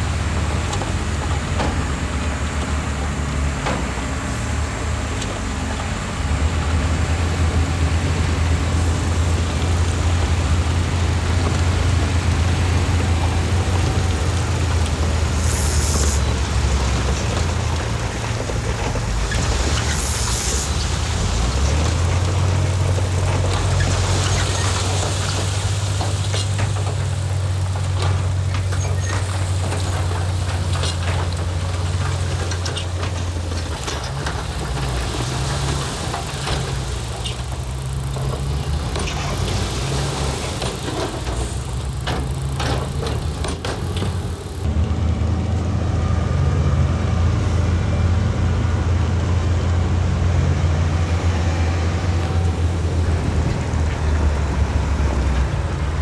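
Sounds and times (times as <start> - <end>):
heavy diesel machinery engine drone: 0.0 - 56.0
metal clanks and rattles: 16.2 - 44.7.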